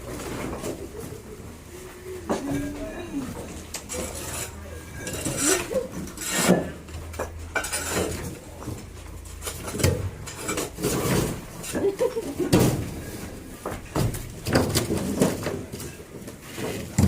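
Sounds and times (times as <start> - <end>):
scraping on a hard surface: 3.7 - 8.5.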